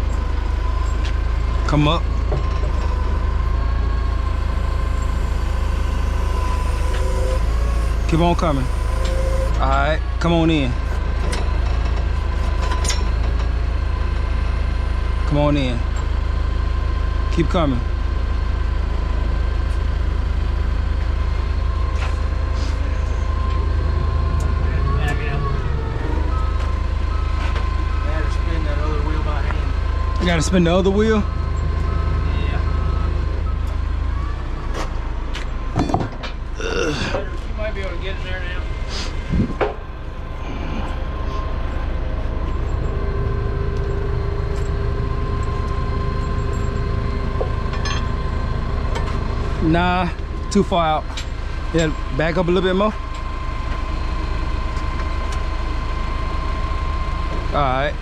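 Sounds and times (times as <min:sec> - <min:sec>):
faint steady whine: 0:00.0 - 0:13.2
diesel engine rumbling: 0:00.0 - 0:58.0
steady whine: 0:00.0 - 0:58.0.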